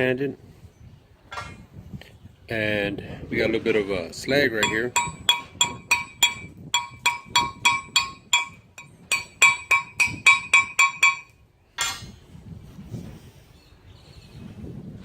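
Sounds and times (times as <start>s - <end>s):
hammer on ringing steel plate: 4.6s - 12.1s.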